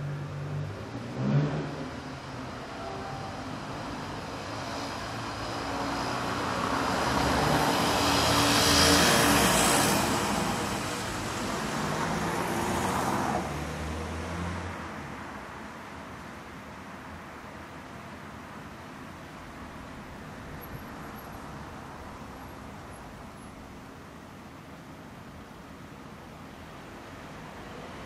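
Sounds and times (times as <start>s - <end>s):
vehicle passing by: 0.0s - 2.5s, 3.5s - 15.0s
hum of traffic: 0.0s - 28.0s.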